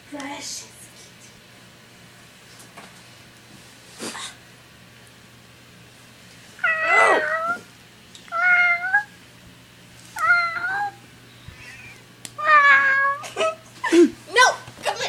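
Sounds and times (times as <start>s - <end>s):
cat meowing: 6.6s - 7.7s, 8.3s - 9.1s, 10.2s - 11.0s, 12.4s - 13.2s.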